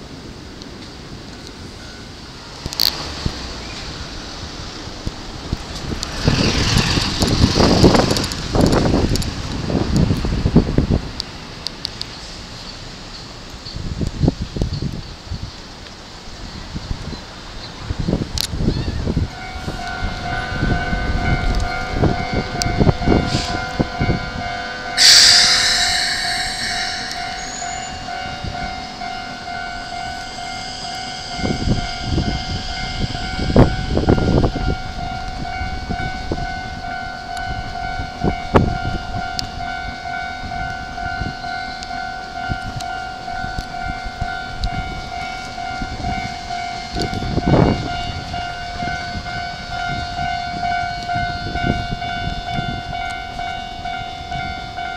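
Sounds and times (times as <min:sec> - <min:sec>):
electric train high hum: 0:00.0 - 0:18.3, 0:19.0 - 0:54.9
sudden hiss: 0:25.0 - 0:28.6.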